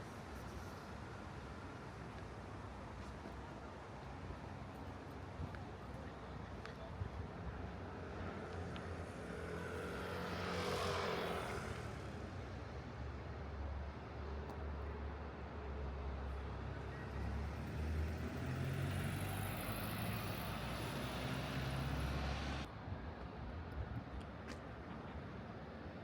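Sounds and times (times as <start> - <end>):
traffic engine rumble: 14.4 - 22.7
vehicle passing close: 17.6 - 22.7.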